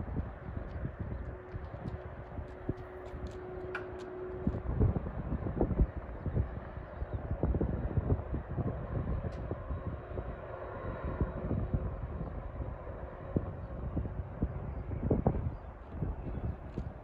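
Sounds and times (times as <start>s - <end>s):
jet engines rumbling: 0.0s - 17.0s
wind gusting on microphone: 0.0s - 17.0s.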